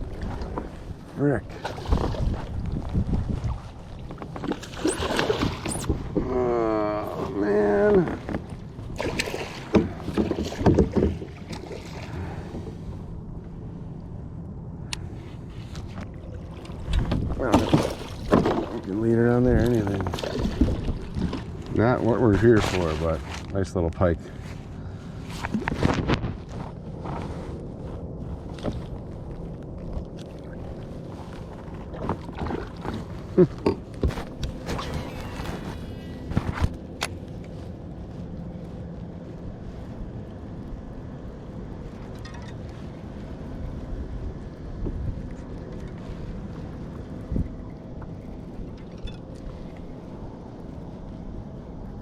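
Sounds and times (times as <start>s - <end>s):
steady low rumble: 0.0s - 52.0s
wind on microphone: 1.7s - 13.5s, 15.0s - 18.7s, 39.3s - 52.0s.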